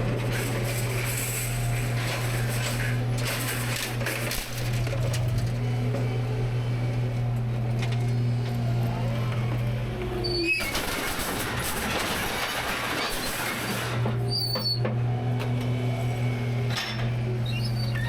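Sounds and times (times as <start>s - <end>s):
short high squeaks: 14.3s - 14.8s, 17.4s - 18.0s.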